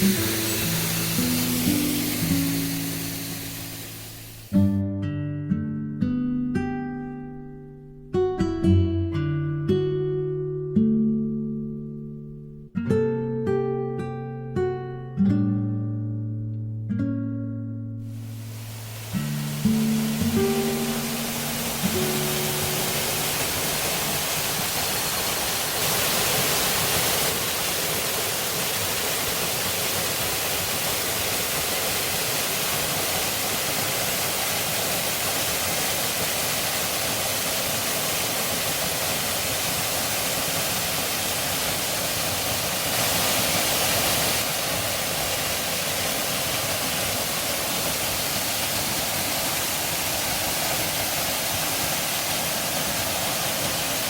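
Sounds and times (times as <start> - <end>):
waterfall rushing: 0.0 - 4.7, 18.1 - 54.0.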